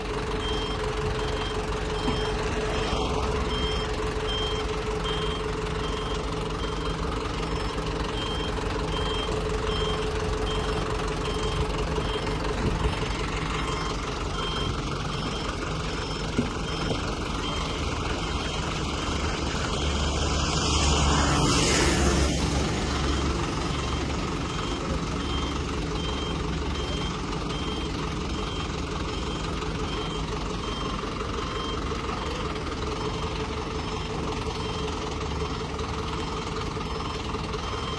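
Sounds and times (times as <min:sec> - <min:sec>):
heavy truck engine running: 0:00.0 - 0:37.9
reversing alarm beeping: 0:00.3 - 0:37.9
rush of noise: 0:19.2 - 0:23.9.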